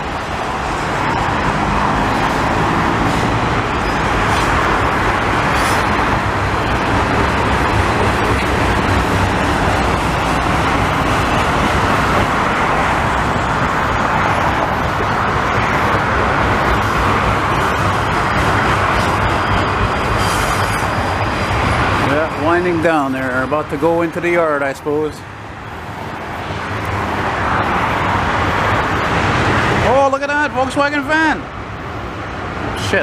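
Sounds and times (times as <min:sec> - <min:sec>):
freight train wheels on rails: 0:00.0 - 0:24.4.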